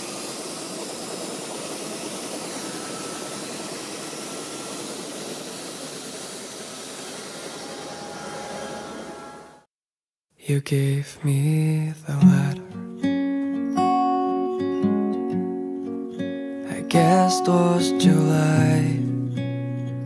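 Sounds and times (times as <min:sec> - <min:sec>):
helicopter turbine and rotor: 0:00.0 - 0:09.7.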